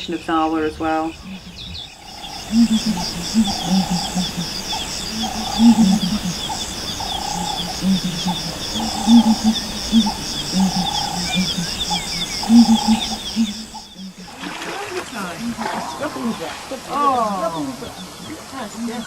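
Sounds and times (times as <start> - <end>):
high drawn-out animal call: 1.2 - 19.0
short low animal calls: 1.3 - 14.6
fast high pulsing: 1.9 - 19.0.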